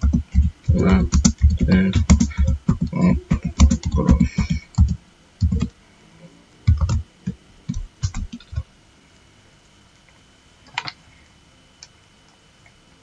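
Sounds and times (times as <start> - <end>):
keyboard keystrokes: 0.0 - 5.7, 6.7 - 7.0, 7.7 - 8.6.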